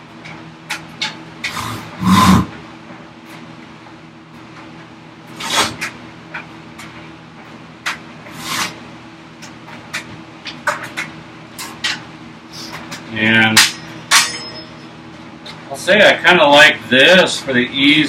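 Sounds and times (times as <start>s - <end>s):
steady low hum: 0.0s - 18.0s
handsaw rasping through wood: 1.5s - 2.5s.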